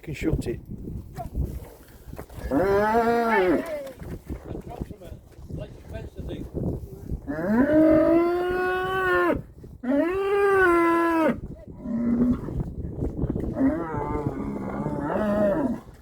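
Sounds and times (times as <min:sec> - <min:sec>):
cattle mooing: 0:02.5 - 0:03.6, 0:13.6 - 0:15.9.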